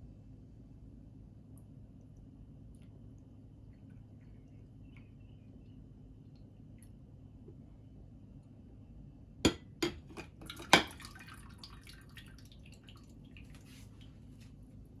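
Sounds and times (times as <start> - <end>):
low steady hum: 0.0 - 15.0
light ticks and drips: 1.4 - 7.8, 10.4 - 14.7.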